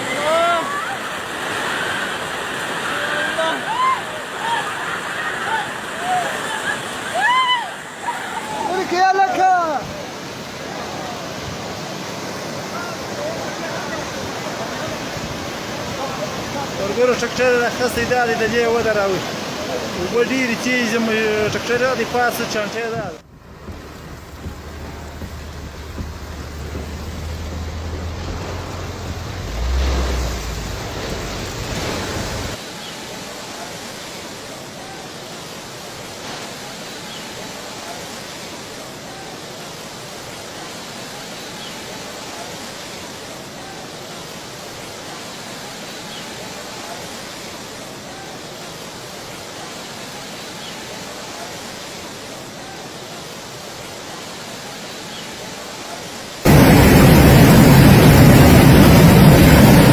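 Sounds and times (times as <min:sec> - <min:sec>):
rushing floodwater: 0:00.0 - 0:59.9
low rumble: 0:23.3 - 0:32.6, 0:56.5 - 0:59.9.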